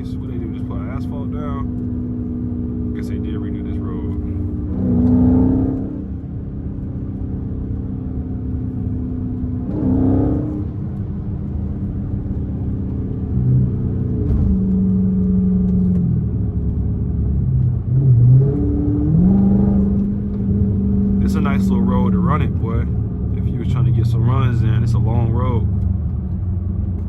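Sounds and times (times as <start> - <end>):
car exhaust drone while driving: 0.0 - 27.0.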